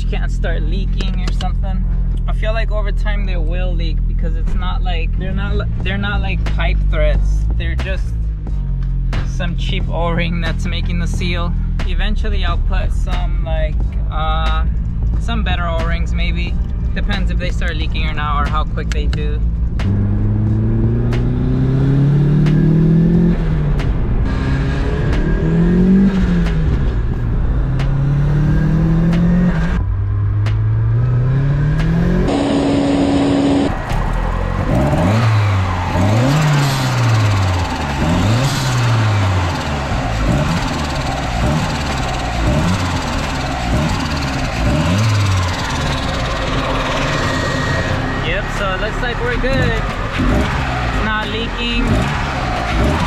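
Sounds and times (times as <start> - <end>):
car engine accelerating through gears: 18.8 - 53.0
engine revving in quick blips: 30.4 - 53.0.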